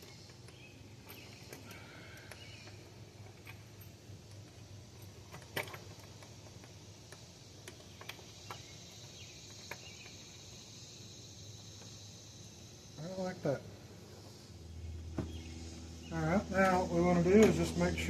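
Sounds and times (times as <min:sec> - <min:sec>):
engine parts clicking: 0:00.0 - 0:10.6
steady low hum: 0:00.0 - 0:18.0
high hiss: 0:05.8 - 0:18.0.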